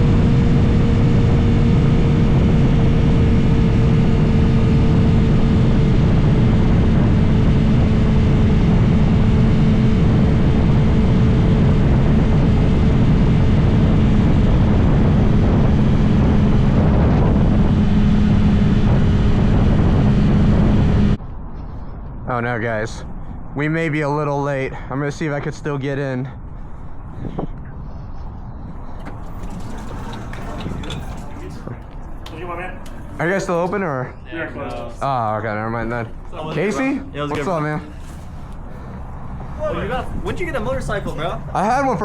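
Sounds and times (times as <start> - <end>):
motorcycle engine cruising: 0.0 - 21.2, 28.6 - 33.7
wind noise on microphone: 0.0 - 22.5, 26.4 - 32.2.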